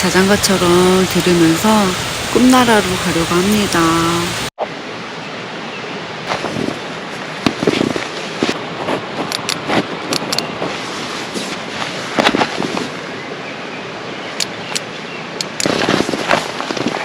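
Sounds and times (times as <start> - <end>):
creek water rushing: 0.0 - 17.0
sharp crackling pops: 7.4 - 10.7, 14.4 - 17.0.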